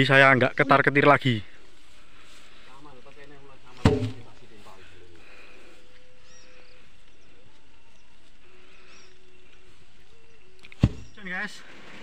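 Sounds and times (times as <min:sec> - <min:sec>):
wooden beam knocking down: 0:03.8 - 0:04.3, 0:10.8 - 0:11.1
faint bird chirps: 0:04.2 - 0:12.0.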